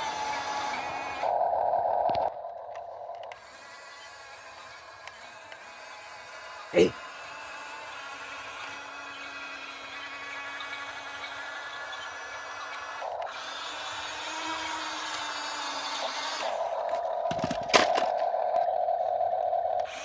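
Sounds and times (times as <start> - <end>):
electric motors whining: 3.3 - 17.1, 19.8 - 20.0.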